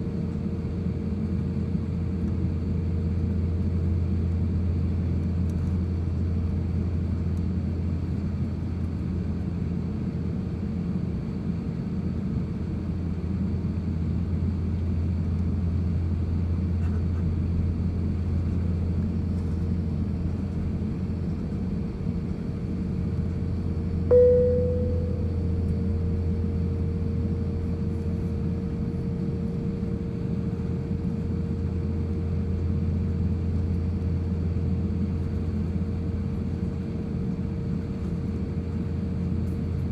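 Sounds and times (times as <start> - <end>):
aircraft cabin engine drone: 0.0 - 39.9
click with short tone: 24.1 - 25.5
faint steady tone: 24.1 - 25.8.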